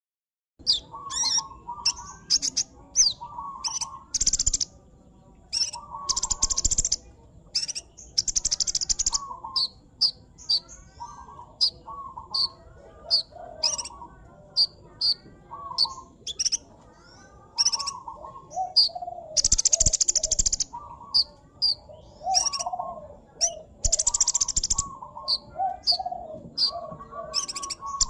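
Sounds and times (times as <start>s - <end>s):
sunbird singing: 0.6s - 28.0s
buzzy rattling bird trills: 0.7s - 4.7s, 5.5s - 12.6s, 17.2s - 21.3s, 23.4s - 26.2s.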